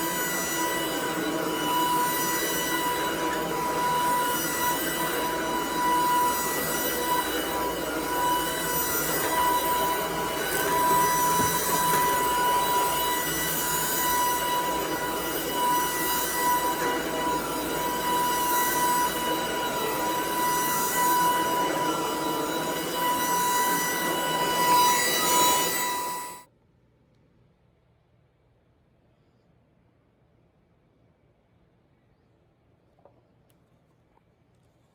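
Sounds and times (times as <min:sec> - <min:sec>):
vacuum cleaner whine and hiss: 0:00.0 - 0:26.5.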